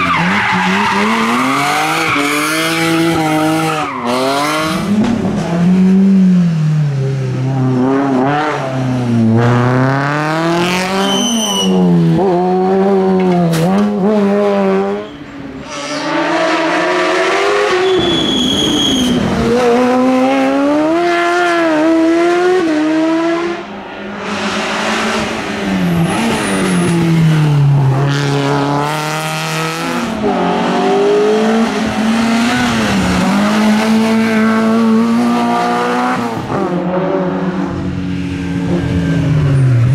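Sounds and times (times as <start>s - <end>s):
rally car engines revving: 0.0s - 39.9s
tyre squeals: 10.8s - 11.9s, 14.9s - 16.9s, 17.7s - 19.3s.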